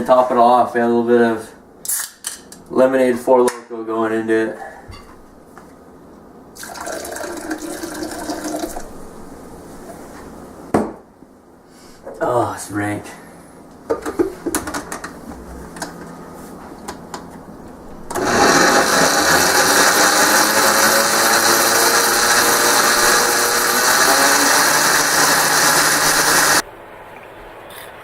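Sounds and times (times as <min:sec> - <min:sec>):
blender running: 0:06.6 - 0:08.8, 0:18.1 - 0:26.6.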